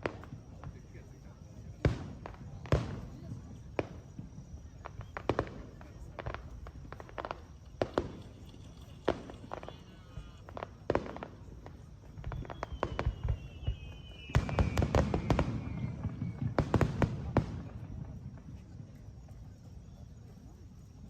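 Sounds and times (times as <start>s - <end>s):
distant fireworks cracking and popping: 0.0s - 21.0s
high descending whistle: 12.3s - 16.4s.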